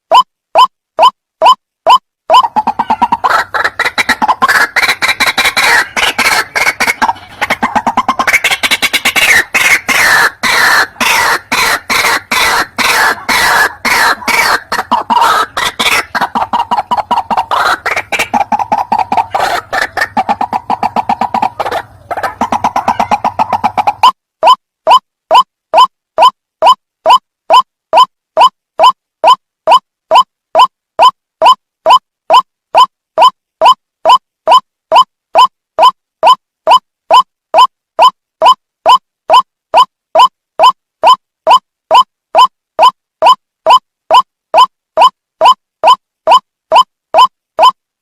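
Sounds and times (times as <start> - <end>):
waterhen croaking calls: 0.1 - 34.2.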